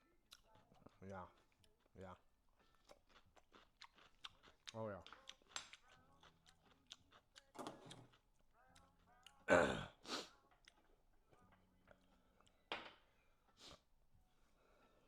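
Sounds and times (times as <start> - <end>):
mouth clicks while eating: 0.3 - 1.9, 2.6 - 9.4.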